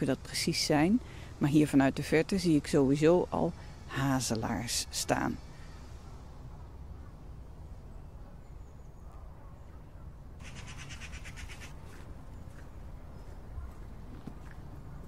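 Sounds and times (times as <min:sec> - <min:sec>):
bird rattling call: 0:10.4 - 0:11.8.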